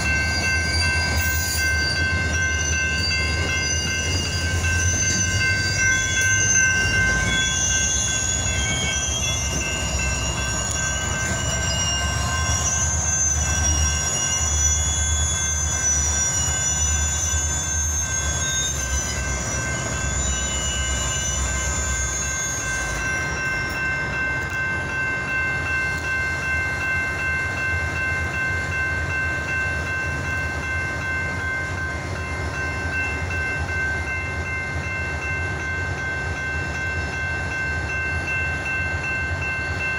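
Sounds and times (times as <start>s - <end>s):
high wheel squeal: 0.0s - 24.4s
freight train rumbling past: 0.0s - 39.9s
high ringing tones: 0.0s - 39.9s.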